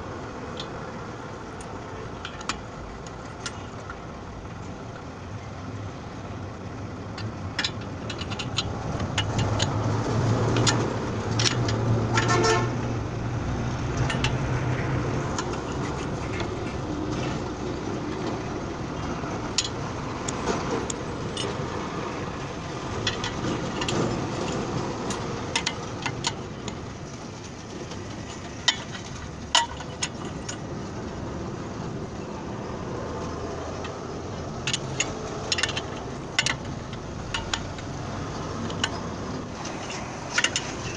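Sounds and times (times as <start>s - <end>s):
steady engine drone: 0.0s - 40.9s
sharp metallic clicks and knocks: 1.5s - 5.1s, 6.0s - 40.9s
vehicle horn tooting: 12.1s - 12.8s.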